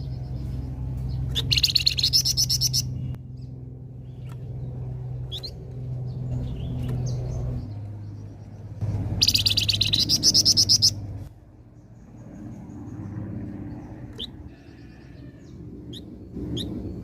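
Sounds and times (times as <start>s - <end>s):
bird chirps: 0.0s - 11.2s, 11.8s - 17.0s
steady low hum: 0.0s - 17.0s
fast loud bird trill: 1.3s - 3.1s, 9.2s - 11.0s.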